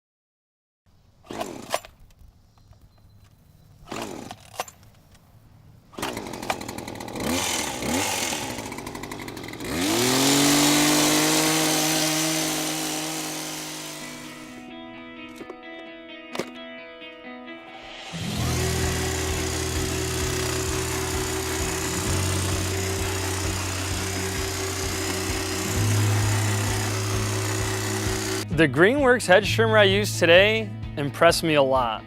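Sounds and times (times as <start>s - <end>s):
power tool whining: 1.2s - 2.1s, 3.8s - 4.9s, 5.9s - 14.7s, 17.8s - 28.5s.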